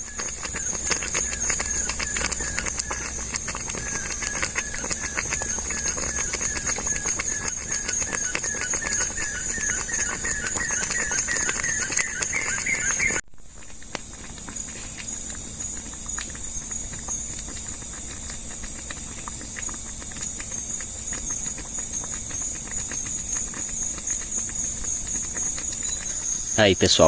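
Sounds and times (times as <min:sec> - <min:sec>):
high insect drone: 0:00.0 - 0:27.0
repeated chirping call: 0:04.0 - 0:13.2, 0:25.8 - 0:27.0.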